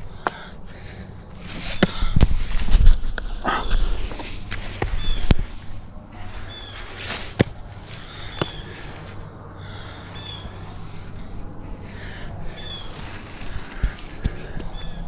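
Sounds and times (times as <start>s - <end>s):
bird chirping: 4.8s - 7.0s, 7.6s - 15.0s.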